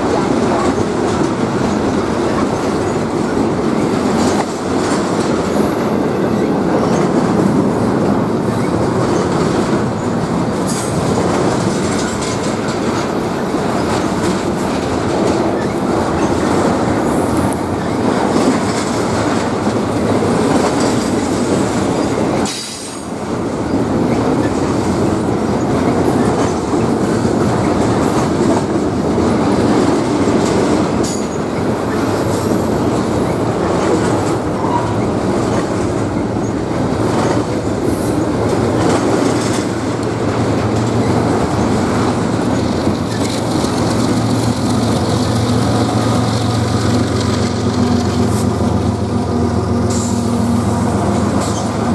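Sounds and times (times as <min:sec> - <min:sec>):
train wheels rumbling on rail: 0:00.0 - 0:51.9
high wheel squeals: 0:32.9 - 0:35.6.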